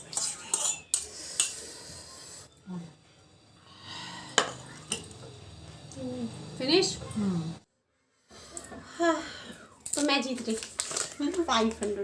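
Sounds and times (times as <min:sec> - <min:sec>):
cutlery clinking on plate: 0:00.0 - 0:01.6.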